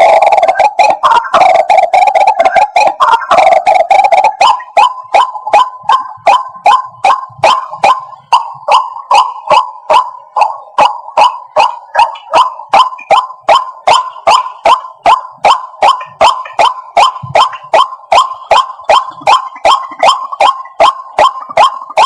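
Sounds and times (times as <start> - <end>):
waterhen sharp calls: 15.4 - 21.7.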